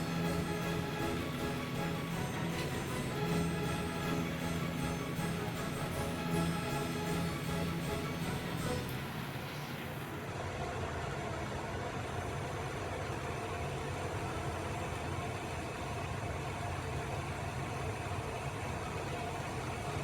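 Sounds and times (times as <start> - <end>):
background music: 0.0 - 10.1.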